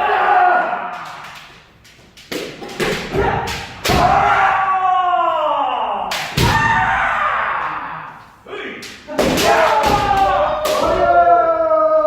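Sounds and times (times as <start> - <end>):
bamboo sword strikes: 2.3 - 4.4.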